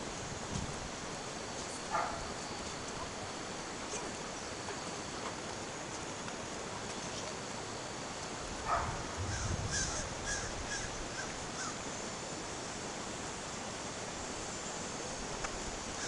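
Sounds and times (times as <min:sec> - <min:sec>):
bird calling: 0:09.3 - 0:11.8.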